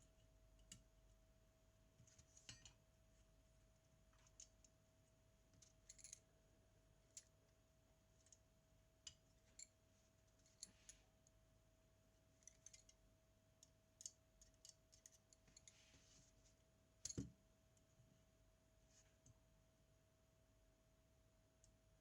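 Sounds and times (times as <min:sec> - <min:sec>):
small metal parts clicking: 0:12.4 - 0:13.0.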